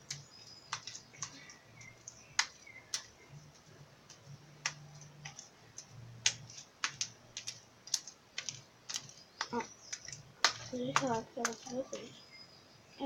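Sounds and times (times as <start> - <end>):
slime clicking and popping: 4.1 - 11.8.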